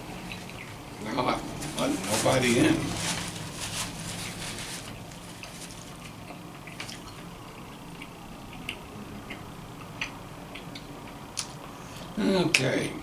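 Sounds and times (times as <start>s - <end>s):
low steady hum: 0.0s - 13.0s
person eating with wet smacks: 5.9s - 11.8s.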